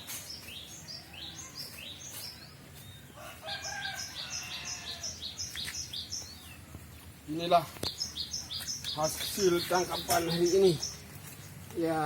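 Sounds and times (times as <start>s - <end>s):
songbird chirping: 0.0s - 12.0s
rooster crowing: 3.2s - 5.3s.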